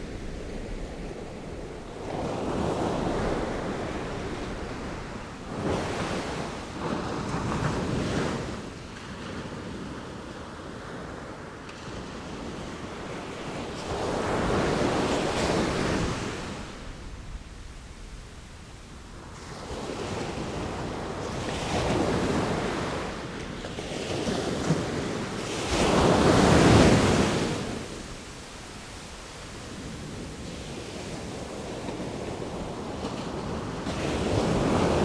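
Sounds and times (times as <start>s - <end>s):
sea waves breaking: 23.7s - 35.0s.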